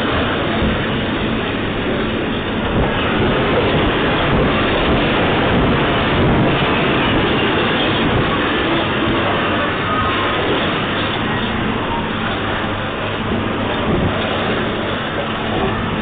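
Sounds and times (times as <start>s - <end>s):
earthquake rumbling and rattling: 0.0s - 16.0s.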